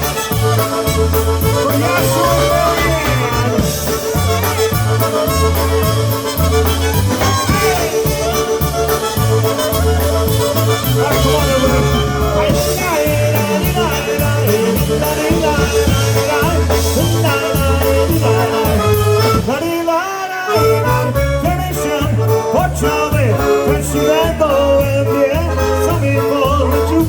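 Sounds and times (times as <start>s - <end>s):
steady bass beat: 0.0s - 19.6s, 20.6s - 27.0s
polka band playing: 0.0s - 27.0s.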